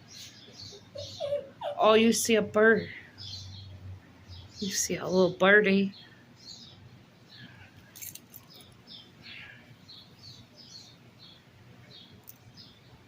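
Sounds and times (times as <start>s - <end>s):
small bird chirping: 0.0s - 2.2s.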